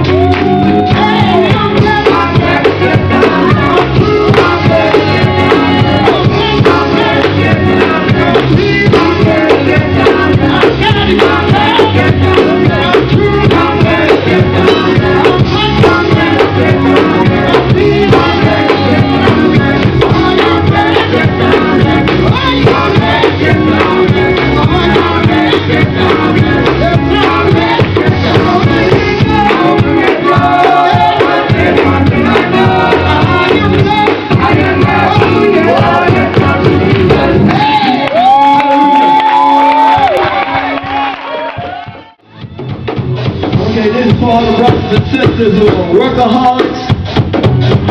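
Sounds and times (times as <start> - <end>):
vocal group singing gospel: 0.0 - 41.7
full band playing: 0.0 - 47.9.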